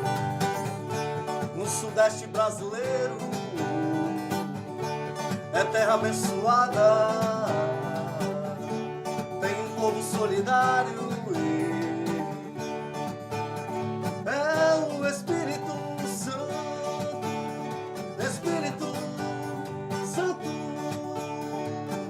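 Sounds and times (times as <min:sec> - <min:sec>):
acoustic guitar plucked and strummed: 0:00.0 - 0:22.0.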